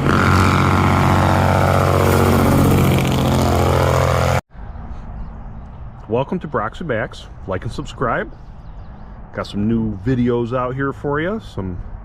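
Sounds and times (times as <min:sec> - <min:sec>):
truck diesel engine running: 0:00.0 - 0:04.4.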